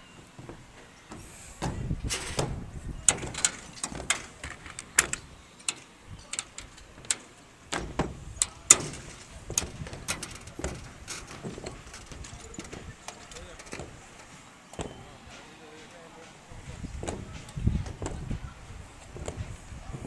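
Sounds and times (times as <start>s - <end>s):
knocks on metal roofing: 7.7s - 14.1s, 16.9s - 19.6s.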